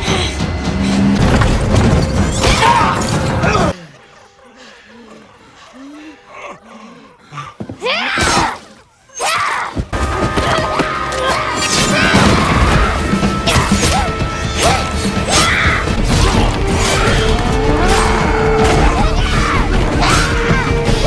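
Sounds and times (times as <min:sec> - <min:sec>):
action film music: 0:00.0 - 0:04.5, 0:09.9 - 0:21.0.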